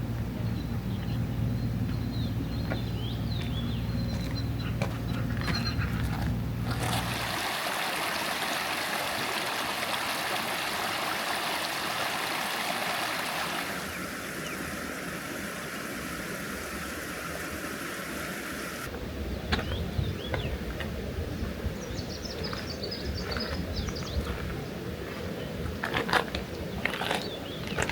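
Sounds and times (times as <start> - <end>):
stream water rushing: 6.7 - 18.9.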